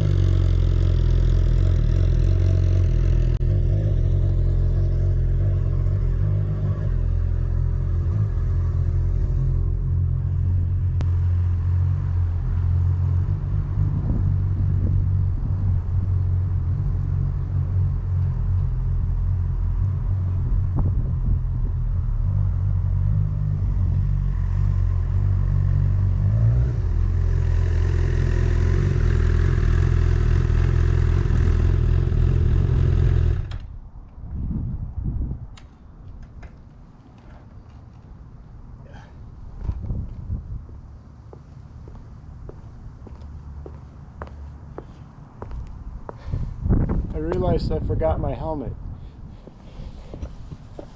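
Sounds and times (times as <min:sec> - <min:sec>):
motorcycle engine running: 0:00.0 - 0:16.7, 0:20.4 - 0:33.5.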